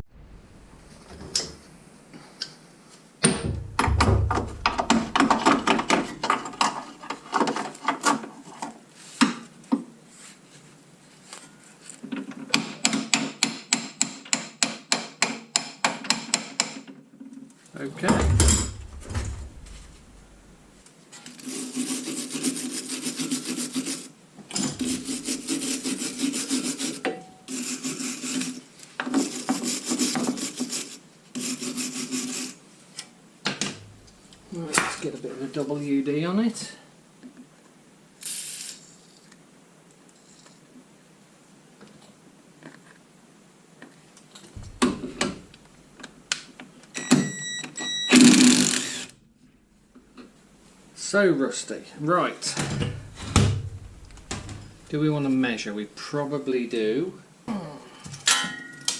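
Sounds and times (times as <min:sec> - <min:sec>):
hand tool scrubbing rusty metal: 0:24.7 - 0:28.6.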